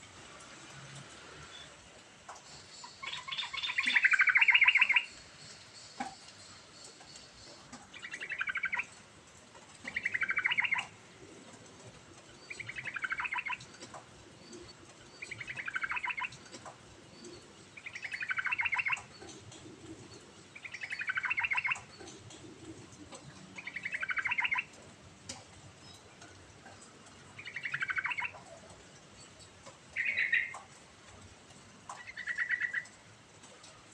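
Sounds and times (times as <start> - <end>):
bird singing bubbly notes: 17.3 - 19.3, 20.5 - 22.0, 23.6 - 24.7, 30.0 - 30.5.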